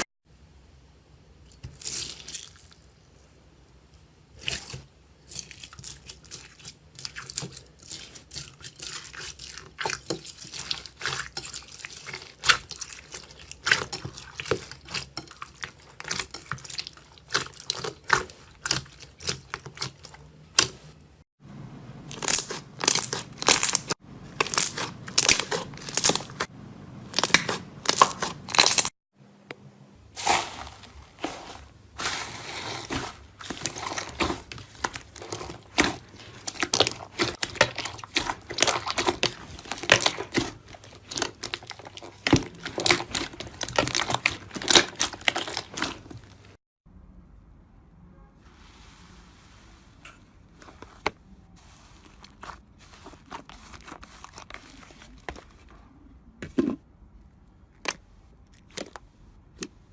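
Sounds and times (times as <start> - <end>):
slime crackling and popping: 22.1 - 26.5, 27.2 - 28.9, 32.1 - 46.5.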